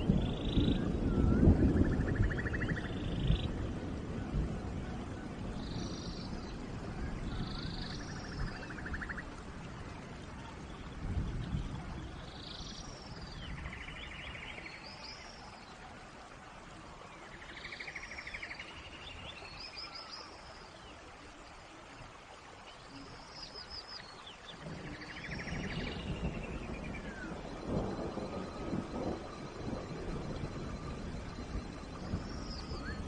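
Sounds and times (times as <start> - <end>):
birds chirping and trilling: 0.0 - 3.5, 5.4 - 9.3, 22.9 - 33.0
rain falling: 0.0 - 33.0.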